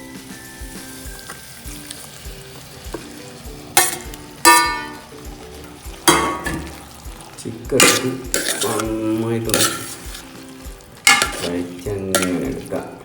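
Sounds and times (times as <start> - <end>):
background music: 0.0 - 13.0
chicken sizzling in a pot: 0.0 - 13.0
metal spoon clanking on pot: 3.7 - 7.1, 7.7 - 10.4, 11.0 - 12.8.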